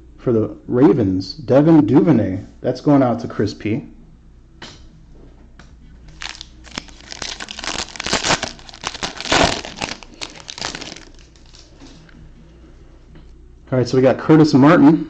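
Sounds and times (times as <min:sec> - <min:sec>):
plastic wrapper crinkling: 0:06.1 - 0:11.8.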